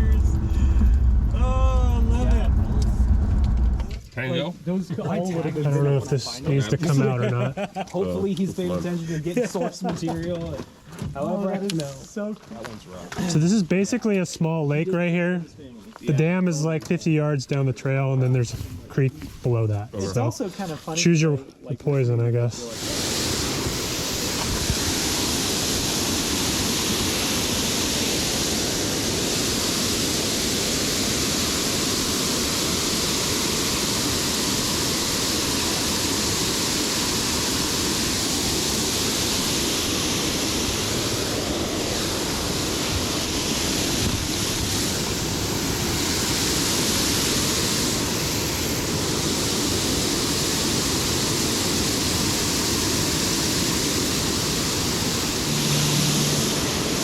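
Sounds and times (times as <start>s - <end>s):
rushing water: 22.6s - 57.0s.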